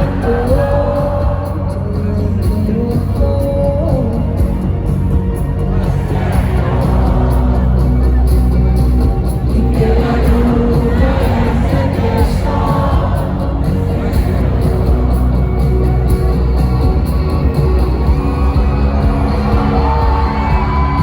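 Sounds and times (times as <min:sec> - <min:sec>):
people singing: 0:00.0 - 0:03.4, 0:05.6 - 0:08.3, 0:09.5 - 0:16.3
crowd noise: 0:00.0 - 0:21.0
live band music with heavy bass: 0:00.0 - 0:21.0.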